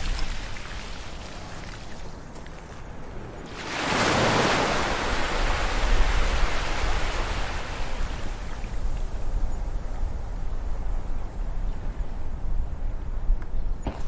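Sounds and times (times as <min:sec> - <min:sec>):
ocean wave breaking on beach: 0:03.5 - 0:08.5.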